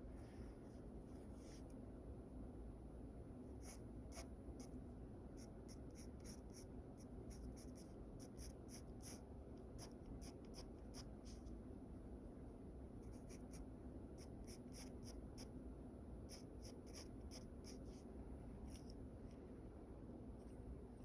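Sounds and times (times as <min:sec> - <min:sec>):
pencil sketching on paper: 0:05.4 - 0:09.2.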